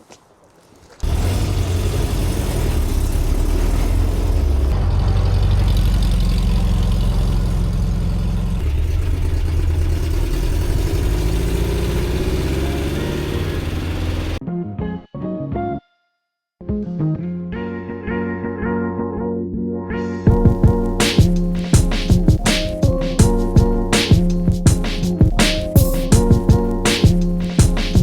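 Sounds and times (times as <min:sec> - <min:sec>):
engine droning while driving: 0:01.0 - 0:14.4.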